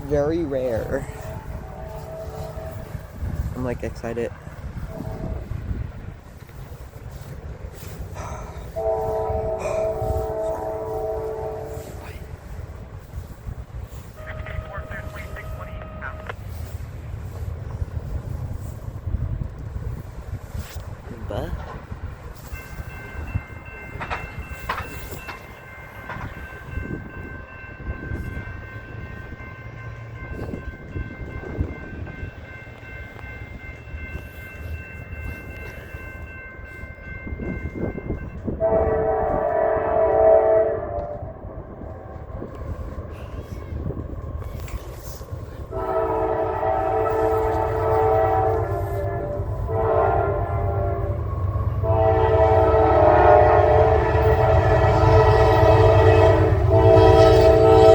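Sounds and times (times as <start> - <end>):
train rumbling past: 0.0 - 57.9
locomotive air horn blasts: 0.8 - 3.2, 4.8 - 5.8, 8.6 - 12.3, 13.9 - 16.7, 38.4 - 41.4, 45.7 - 57.9.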